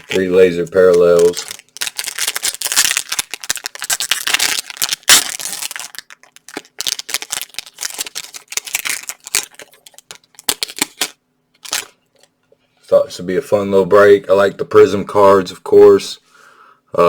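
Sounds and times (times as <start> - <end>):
plastic wrapper crinkling and tearing: 0.0 - 12.0.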